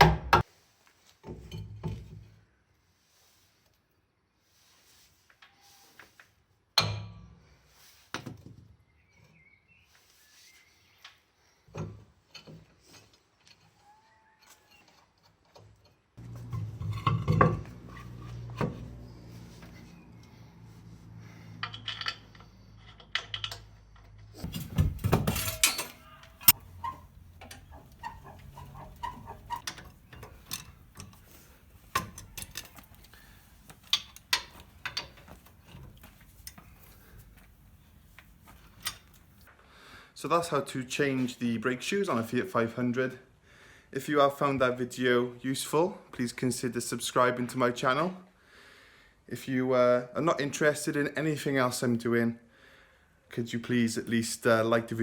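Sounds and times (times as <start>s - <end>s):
low steady hum: 16.2s - 22.4s
metal tools and parts clattering: 16.3s - 19.0s, 21.4s - 39.5s.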